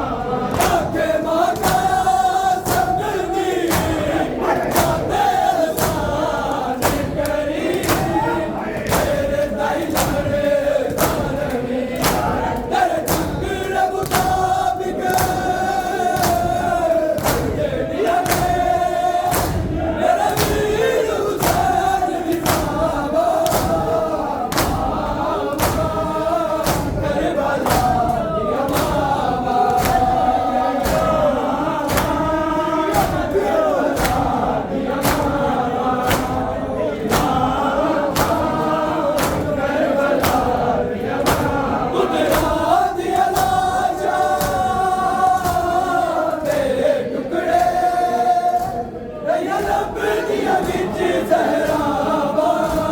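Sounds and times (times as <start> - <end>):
men chanting in chorus: 0.0 - 52.9
rhythmic chest-beating slaps: 0.0 - 52.9.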